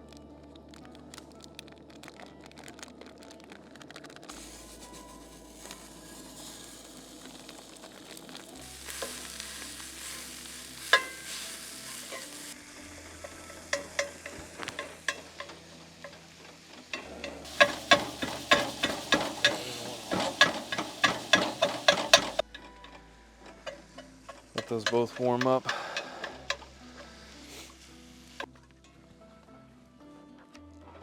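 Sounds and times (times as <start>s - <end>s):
food sizzling in a pan: 4.3s - 28.5s
utensil scraping a pan: 8.6s - 12.6s, 13.2s - 27.7s.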